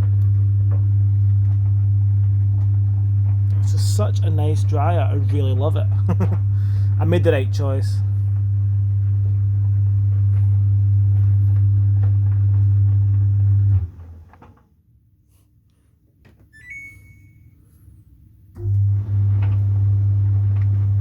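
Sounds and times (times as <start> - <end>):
tumble dryer deep hum: 0.0 - 14.6, 18.6 - 21.0
short high chirp: 16.6 - 17.6.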